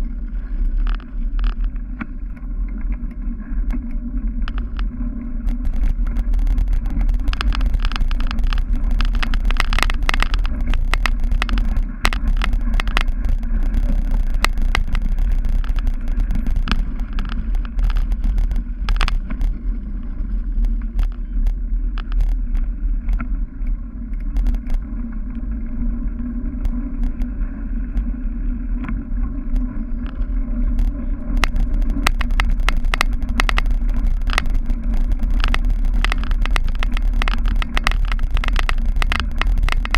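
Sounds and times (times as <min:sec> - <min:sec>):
bike rattles and clicks: 0:00.0 - 0:39.9
wind rumble on microphone: 0:00.0 - 0:39.9.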